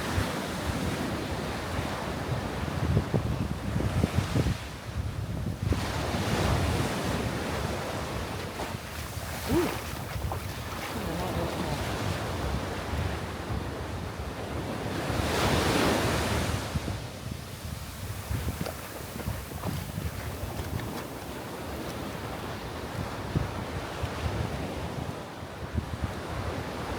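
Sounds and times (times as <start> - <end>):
wind buffeting microphone: 2.3 - 15.5, 16.2 - 25.0
surf washing onto sand: 5.8 - 13.6, 14.9 - 23.3
wave breaking: 8.7 - 12.4.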